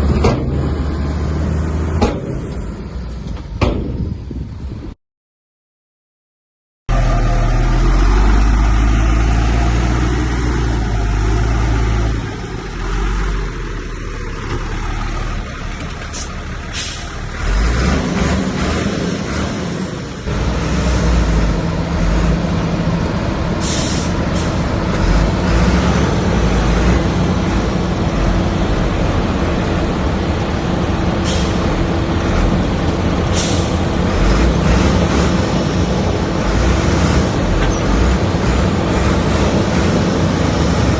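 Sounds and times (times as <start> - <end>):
heavy diesel machinery working: 0.0 - 4.6, 6.9 - 40.9
sharp hisses or clanks: 23.6 - 24.6.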